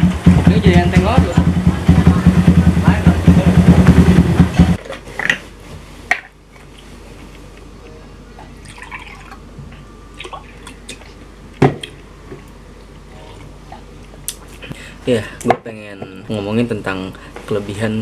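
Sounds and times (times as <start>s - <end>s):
motorcycle engine running: 0.0s - 4.8s
liquid pouring into a glass: 8.6s - 9.4s.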